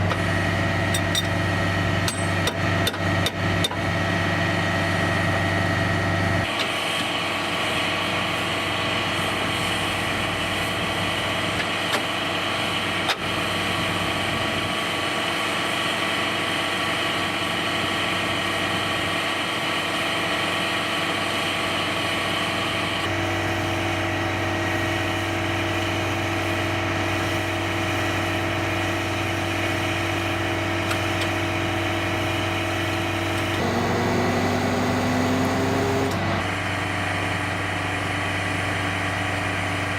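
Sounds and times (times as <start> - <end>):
heavy truck engine idling: 20.2 - 39.9.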